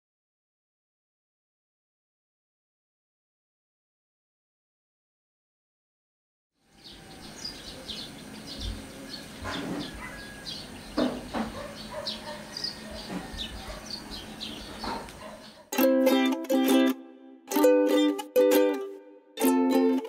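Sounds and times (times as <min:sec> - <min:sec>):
small birds chirping: 0:06.6 - 0:15.7
short knocks: 0:11.0 - 0:11.7.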